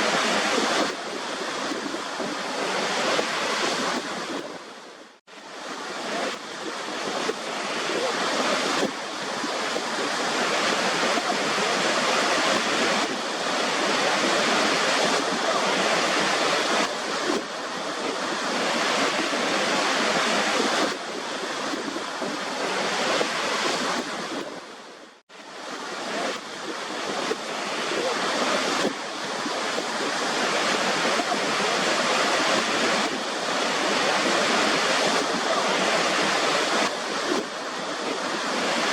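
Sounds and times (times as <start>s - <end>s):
waterfall running: 25.5s - 38.9s.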